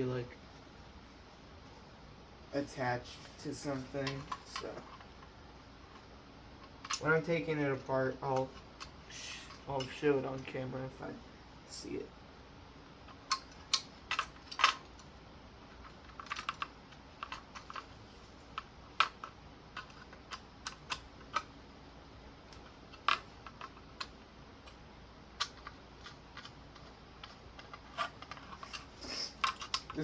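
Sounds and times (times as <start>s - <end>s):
small metal parts clicking: 25.4s - 30.0s.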